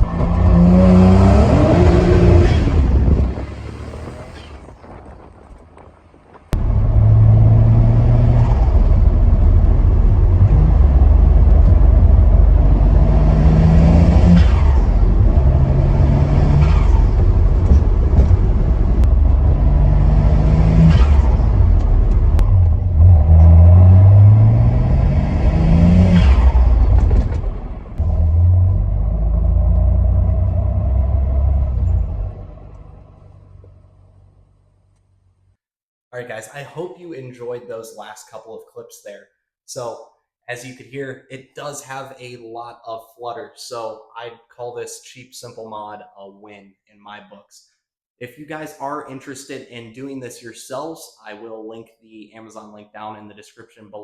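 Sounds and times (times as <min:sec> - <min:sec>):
car engine accelerating hard: 0:00.0 - 0:04.6, 0:06.6 - 0:33.4.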